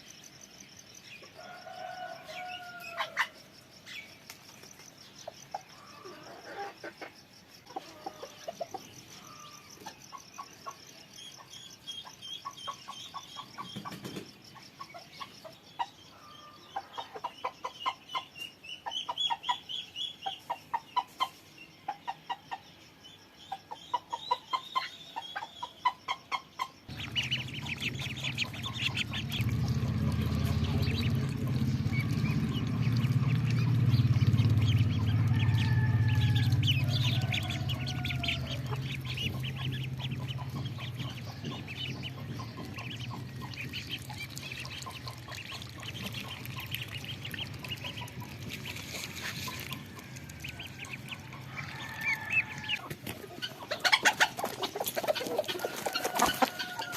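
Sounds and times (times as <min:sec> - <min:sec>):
chickens clucking: 0:05.2 - 0:22.7, 0:23.6 - 0:56.9
steady low rumble: 0:26.9 - 0:51.5.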